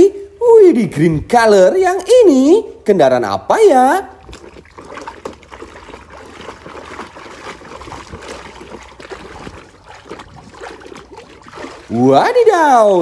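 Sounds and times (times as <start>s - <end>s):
water sloshing and trickling: 3.7s - 13.0s
small splashes: 4.0s - 13.0s.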